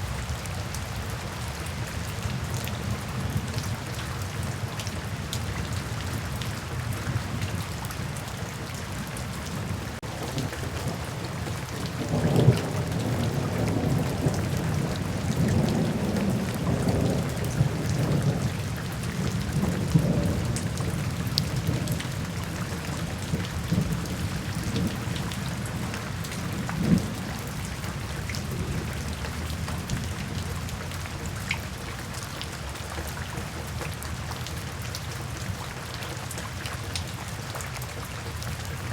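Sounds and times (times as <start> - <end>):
steady rain: 0.0 - 38.9
thunder cracking and rumbling: 9.6 - 31.0.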